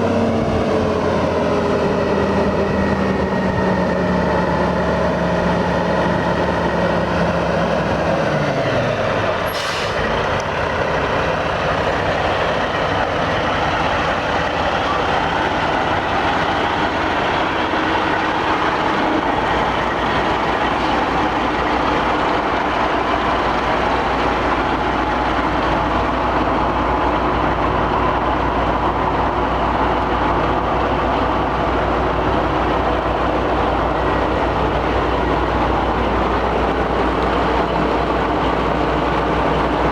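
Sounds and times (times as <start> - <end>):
truck engine running: 0.0 - 39.9
air brake hiss: 9.5 - 10.1.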